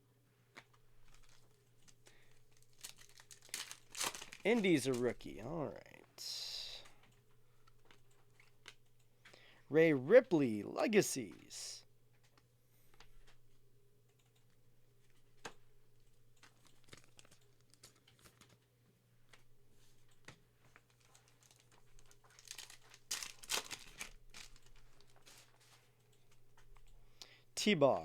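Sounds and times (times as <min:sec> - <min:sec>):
card wrappers rustling: 0:00.6 - 0:05.8, 0:16.4 - 0:18.7, 0:19.4 - 0:26.8
trading cards clicking: 0:02.7 - 0:05.6.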